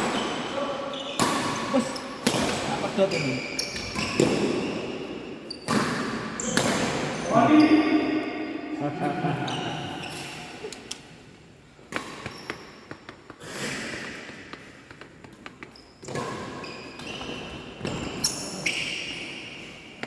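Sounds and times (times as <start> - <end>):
shoes squeaking on floor: 0.0 - 8.6, 9.4 - 10.9, 11.9 - 19.9
racket hitting shuttlecock: 1.2 - 2.8, 3.7 - 4.8, 5.6 - 7.2.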